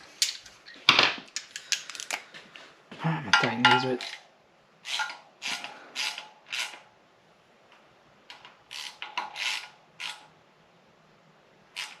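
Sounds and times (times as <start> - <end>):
ratchet wrench rasping strokes: 4.8 - 6.8, 8.7 - 10.2, 11.8 - 12.0.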